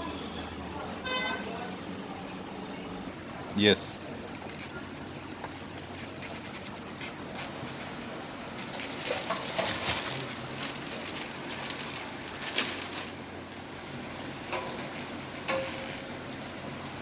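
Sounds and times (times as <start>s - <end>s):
scraping and rustling handling noise: 4.3s - 13.7s.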